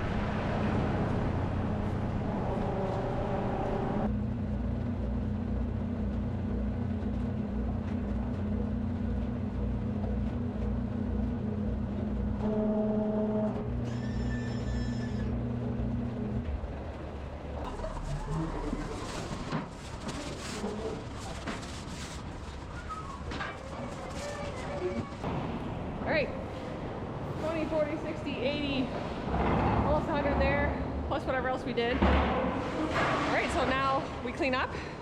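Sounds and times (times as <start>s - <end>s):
machine humming and pulsing: 0.0s - 20.0s.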